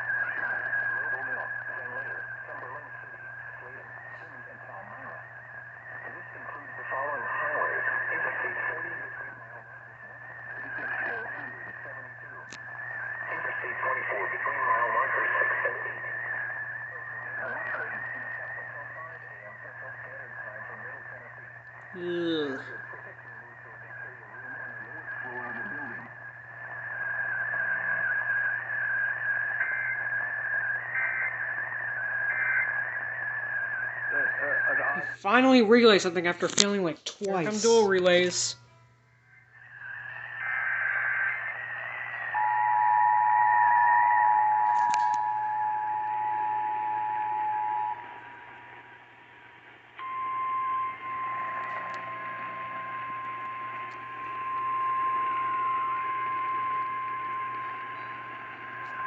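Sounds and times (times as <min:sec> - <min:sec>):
low hum: 0:00.0 - 0:36.4, 0:37.2 - 0:59.0
radio high whistle: 0:11.7 - 0:22.1, 0:22.8 - 0:35.3, 0:39.4 - 0:59.0
single-pitch warning alarm: 0:42.3 - 0:49.1, 0:50.0 - 0:59.0.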